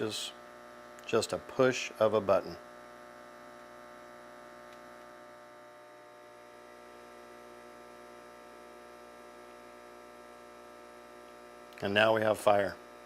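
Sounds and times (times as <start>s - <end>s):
faint electric air pump hum: 0.0s - 13.0s.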